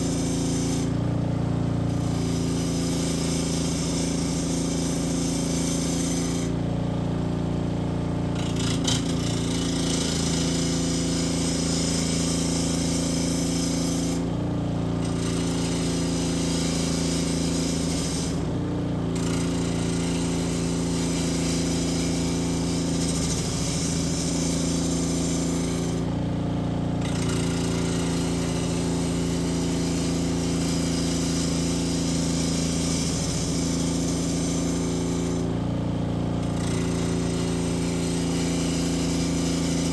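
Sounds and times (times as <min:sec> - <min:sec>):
high-pitched hiss of wood shaping: 0:00.0 - 0:01.0, 0:01.9 - 0:06.5, 0:15.1 - 0:18.4, 0:19.2 - 0:26.0, 0:27.1 - 0:35.5, 0:36.5 - 0:39.9
power tool motor running: 0:00.0 - 0:39.9.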